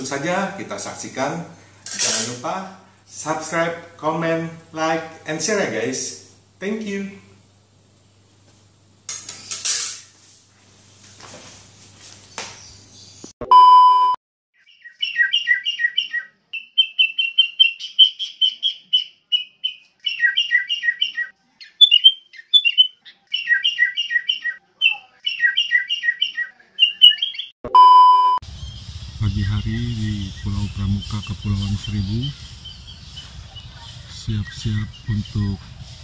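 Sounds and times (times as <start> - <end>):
electronic beep: 13.4 - 14.2, 27.6 - 28.4
songbird chirping and trilling: 14.6 - 27.6, 28.4 - 36.0.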